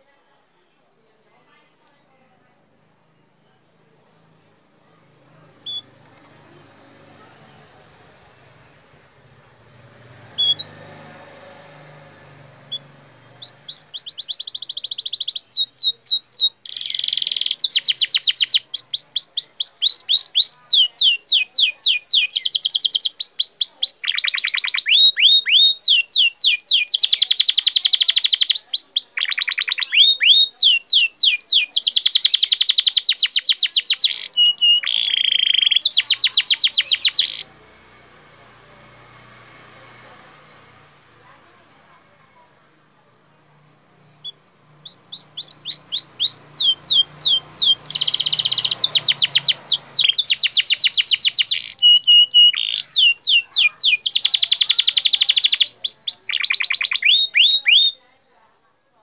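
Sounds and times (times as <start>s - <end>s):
faint bird chirps: 5.5s - 6.6s, 10.4s - 10.8s, 12.3s - 37.6s, 44.0s - 58.0s
songbird singing rapid trills: 12.6s - 37.6s, 44.2s - 58.0s.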